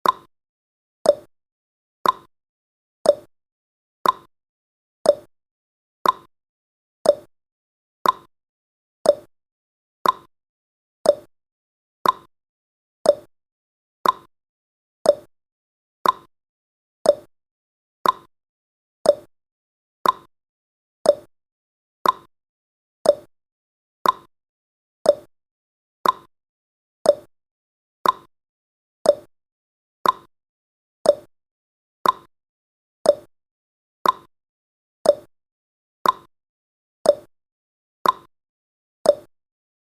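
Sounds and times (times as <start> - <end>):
countdown timer ticking: 5.1 - 5.3, 7.1 - 7.3, 9.1 - 9.3, 10.0 - 10.3, 11.1 - 11.3, 13.1 - 13.3, 15.1 - 15.3, 17.1 - 17.3, 18.0 - 18.3, 19.1 - 19.3, 21.1 - 21.3, 23.0 - 23.3, 25.1 - 25.3, 26.0 - 26.3, 27.1 - 27.3, 28.0 - 28.3, 29.1 - 29.3, 30.0 - 30.3, 31.1 - 31.3, 32.0 - 32.3, 33.1 - 33.3, 34.0 - 34.3, 35.1 - 35.3, 36.0 - 36.3, 37.1 - 37.3, 38.0 - 38.3, 39.1 - 39.3.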